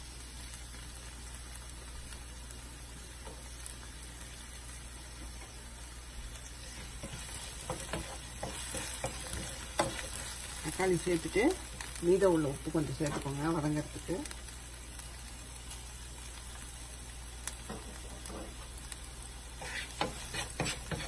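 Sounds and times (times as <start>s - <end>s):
vegetables sizzling in hot oil: 0.0s - 21.0s
wooden spatula scraping a pan: 6.6s - 11.1s, 19.6s - 21.0s.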